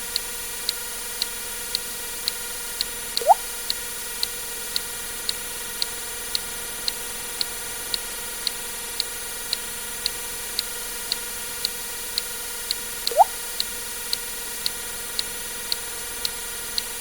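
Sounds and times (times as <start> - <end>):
short even ticks: 0.7 - 3.8, 13.1 - 14.8.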